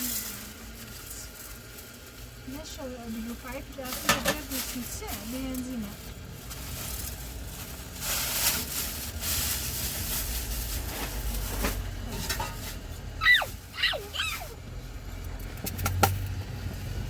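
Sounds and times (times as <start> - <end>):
rustling noise: 3.7 - 14.6
high falling animal cries: 13.2 - 14.6.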